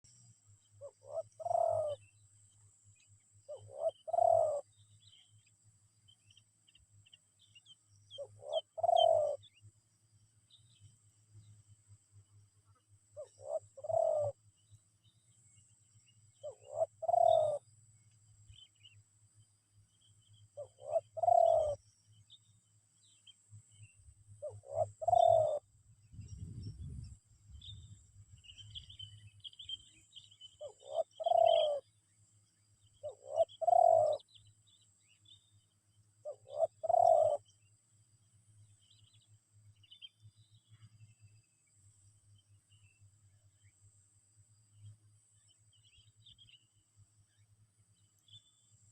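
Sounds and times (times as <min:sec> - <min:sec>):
dove cooing: 0:00.8 - 0:02.0, 0:03.5 - 0:04.6, 0:08.2 - 0:09.5, 0:13.2 - 0:14.4, 0:16.4 - 0:17.6, 0:20.6 - 0:21.8, 0:24.4 - 0:25.7, 0:30.6 - 0:31.8, 0:33.0 - 0:34.3, 0:36.2 - 0:37.5.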